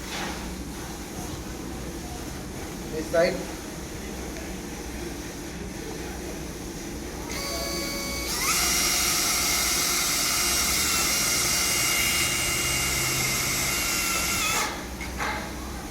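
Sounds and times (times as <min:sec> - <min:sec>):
electric motor whining: 0:07.3 - 0:14.6.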